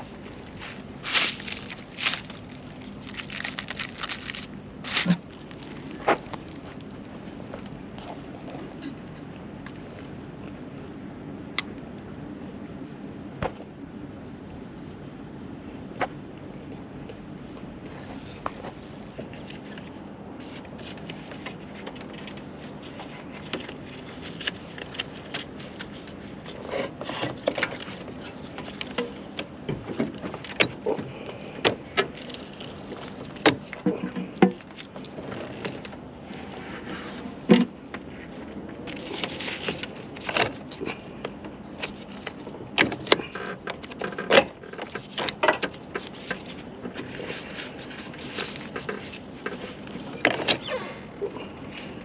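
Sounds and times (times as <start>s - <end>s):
hand tools clinking: 0.0s - 5.2s
steady low background noise: 0.0s - 52.0s.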